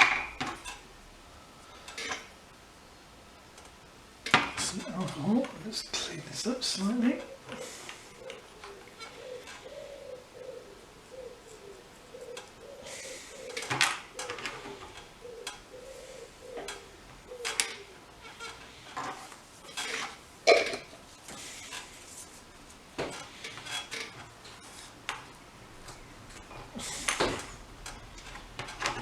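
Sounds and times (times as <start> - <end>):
dove cooing: 4.6 - 21.8, 23.2 - 29.0.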